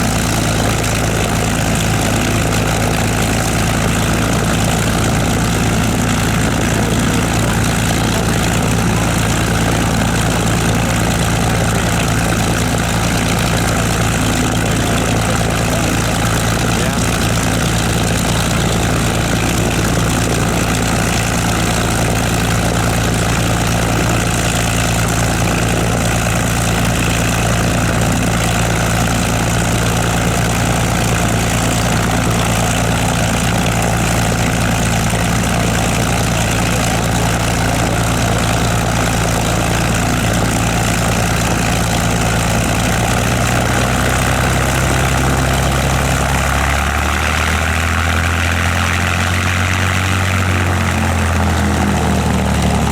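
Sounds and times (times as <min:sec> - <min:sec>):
propeller aircraft engine idling: 0:00.0 - 0:52.9.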